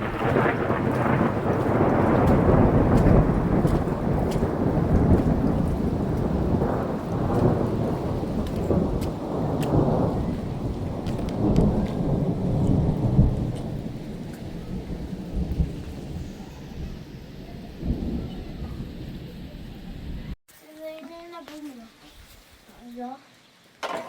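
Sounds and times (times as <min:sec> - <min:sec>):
raindrop ticks: 0:00.0 - 0:16.4
rolling thunder: 0:00.0 - 0:20.4
steady rain: 0:00.0 - 0:24.0.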